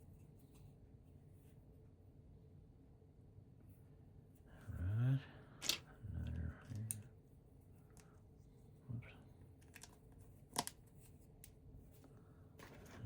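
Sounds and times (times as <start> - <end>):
plastic bricks clicking together: 5.6 - 5.8, 9.6 - 10.8.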